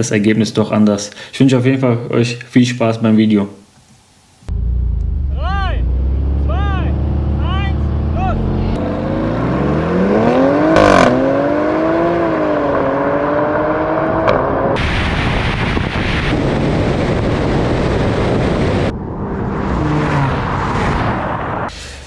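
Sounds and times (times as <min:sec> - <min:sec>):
engine accelerating hard: 0:04.5 - 0:15.0
wind and road rush: 0:04.5 - 0:22.0.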